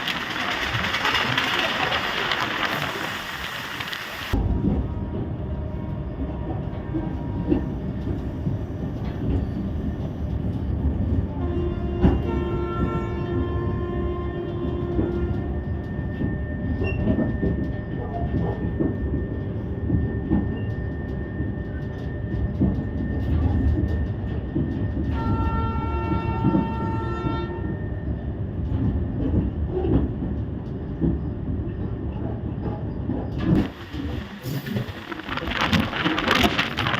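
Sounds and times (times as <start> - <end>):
train wheels rumbling and clattering: 0.0 - 36.9
locomotive horn: 11.3 - 15.6, 25.1 - 27.8.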